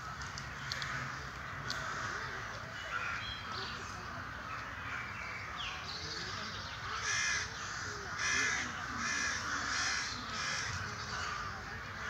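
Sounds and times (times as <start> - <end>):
bird cawing: 6.8 - 11.6.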